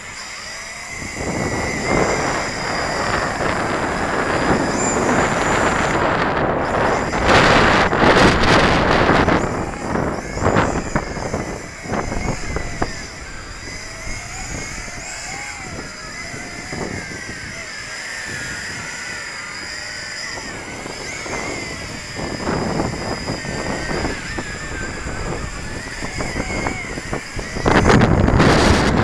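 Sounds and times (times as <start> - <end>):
drone motors whining: 0.0 - 29.0
wind buffeting microphone: 0.0 - 29.0.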